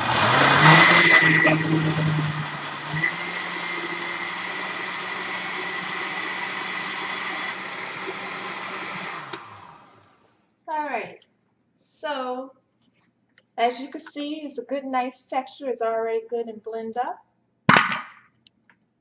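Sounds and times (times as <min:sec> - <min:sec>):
blender running: 0:00.0 - 0:10.4.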